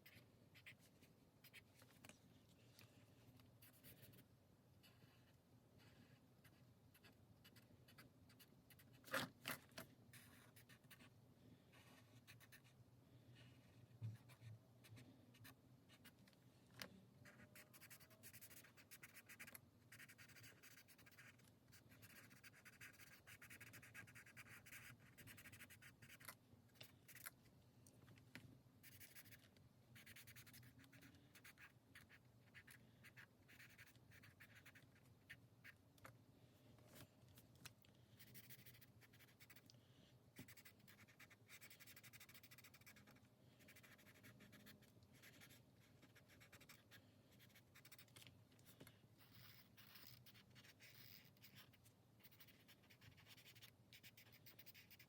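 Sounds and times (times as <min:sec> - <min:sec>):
coloring strokes scratching on paper: 0:17.2 - 0:26.3, 0:30.0 - 0:35.4, 0:38.2 - 0:39.7, 0:40.4 - 0:48.1, 0:49.2 - 0:55.0.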